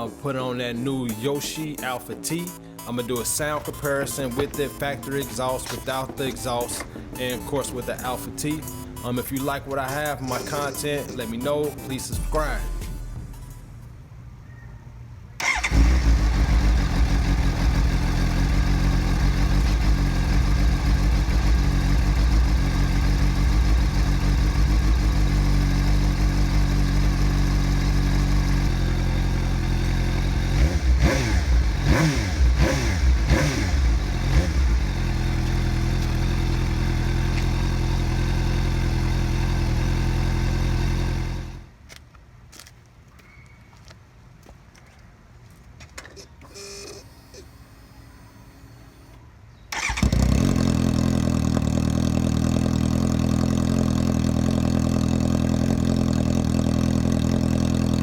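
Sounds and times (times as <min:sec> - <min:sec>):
engine throttle blips: 0:01.1 - 0:14.2, 0:15.4 - 0:41.7, 0:46.4 - 0:58.0
motorcycle engine starting and idling: 0:01.2 - 0:13.8, 0:15.4 - 0:41.8, 0:46.4 - 0:58.0.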